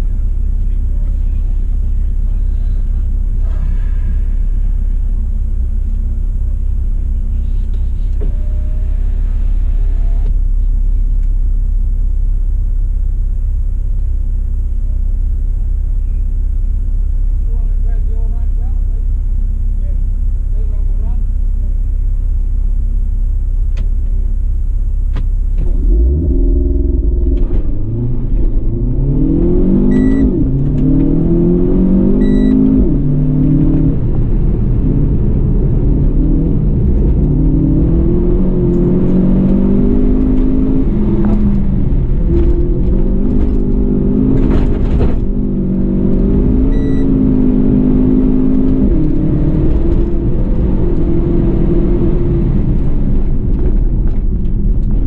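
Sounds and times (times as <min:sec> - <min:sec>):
car engine revving through gears: 0:25.5 - 0:55.0.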